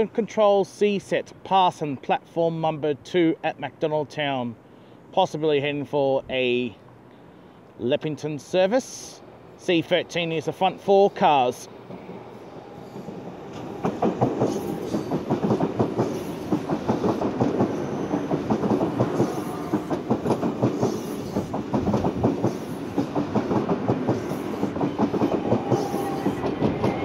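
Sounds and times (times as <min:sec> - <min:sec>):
train rumble: 0:08.4 - 0:27.0
train wheels clicking over rail joints: 0:11.8 - 0:27.0.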